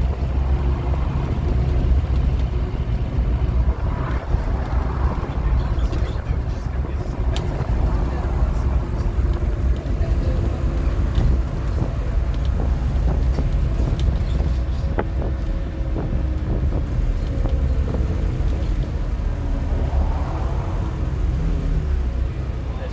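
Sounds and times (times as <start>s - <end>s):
bus diesel engine running: 0.0s - 22.9s
small rattles and clicks: 5.4s - 19.1s.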